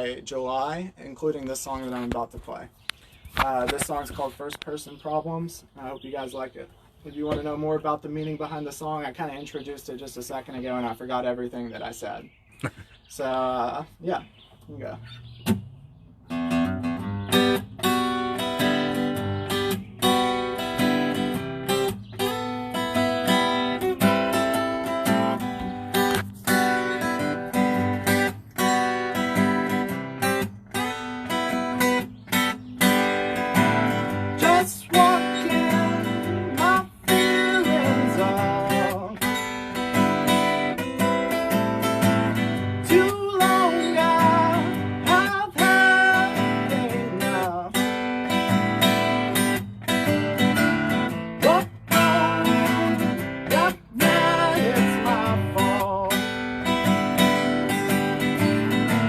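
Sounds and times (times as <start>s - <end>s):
acoustic guitar strumming: 13.1s - 59.0s.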